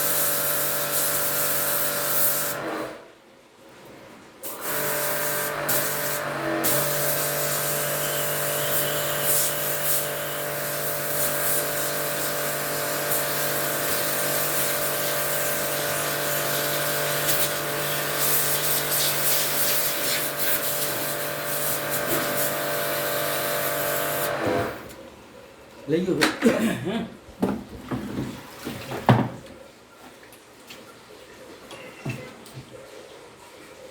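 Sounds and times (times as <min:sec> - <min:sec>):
water spray hissing: 0:00.0 - 0:02.6, 0:04.5 - 0:24.4
water pump motor hum: 0:04.5 - 0:25.0.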